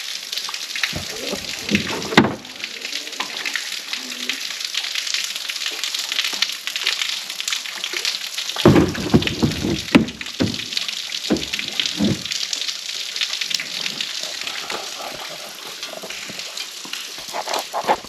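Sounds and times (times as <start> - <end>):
waterfall splashing onto rock: 0.0 - 18.0
dull low thumps: 8.7 - 12.3.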